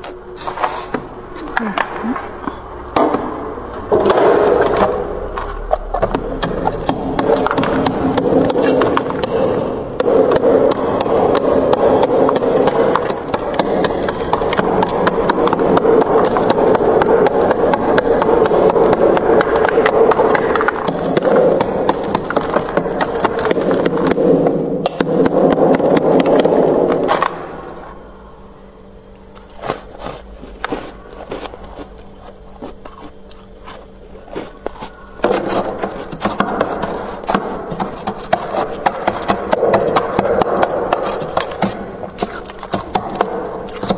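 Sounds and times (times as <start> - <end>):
frost being scraped: 0.0 - 1.0, 29.4 - 39.3.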